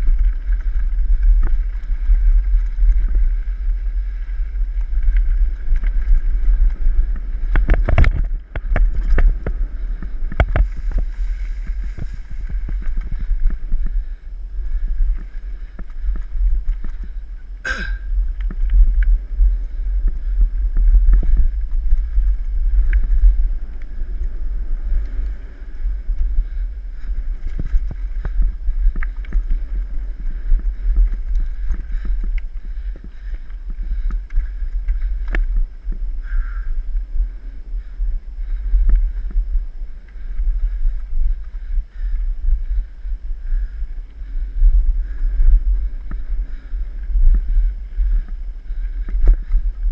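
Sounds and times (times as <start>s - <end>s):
bike clattering over bumps: 0.0s - 36.6s
wind rumble on microphone: 0.0s - 49.9s.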